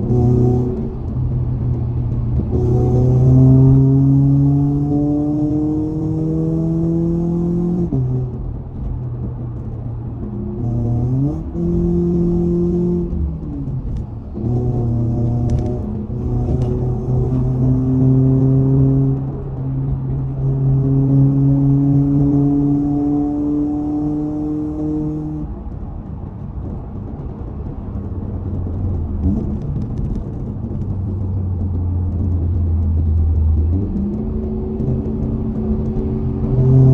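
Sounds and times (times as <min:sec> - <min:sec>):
car engine revving under load: 0:00.0 - 0:36.9
road noise: 0:00.0 - 0:36.9
low rumble: 0:23.8 - 0:36.9.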